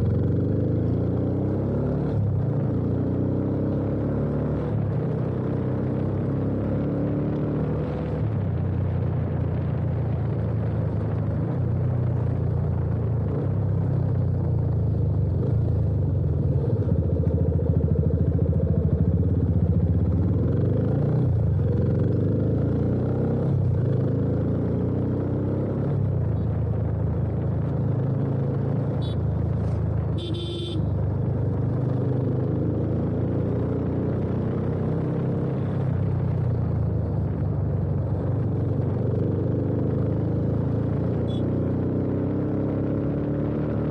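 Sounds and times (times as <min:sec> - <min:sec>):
motorcycle engine running: 0:08.3 - 0:41.6
horn honking: 0:29.0 - 0:29.3, 0:30.1 - 0:30.9, 0:41.2 - 0:41.6.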